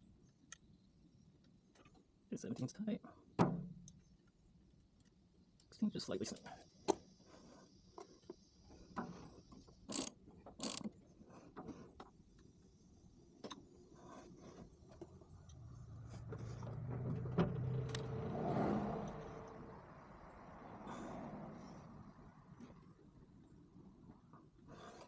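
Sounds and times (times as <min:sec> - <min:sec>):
low steady hum: 0:13.6 - 0:24.3.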